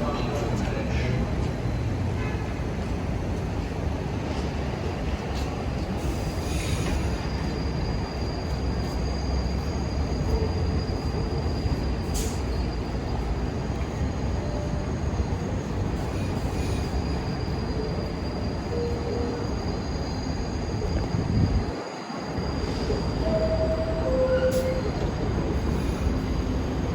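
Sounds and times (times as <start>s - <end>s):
subway train rumbling on rails: 0.0s - 26.9s
faint wheel squeals: 6.0s - 21.7s.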